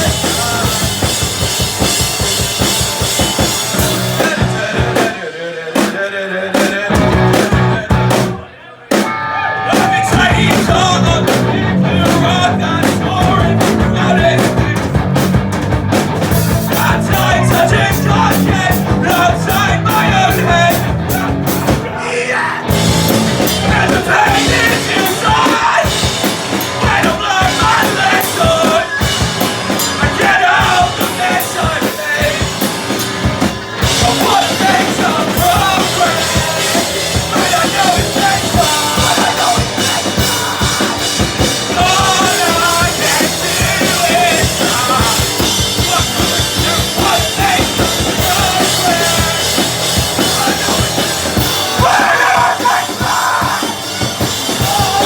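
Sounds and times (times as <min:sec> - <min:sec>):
drum kit: 0:00.0 - 0:22.0, 0:22.6 - 0:55.0
distorted electric guitars: 0:00.0 - 0:55.0
person shouting vocals: 0:51.7 - 0:53.8.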